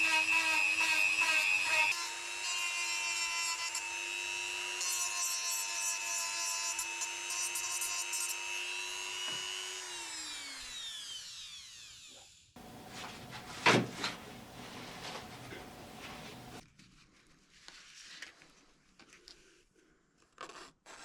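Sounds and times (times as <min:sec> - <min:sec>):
rubbing and handling on wood: 0:12.6 - 0:16.6.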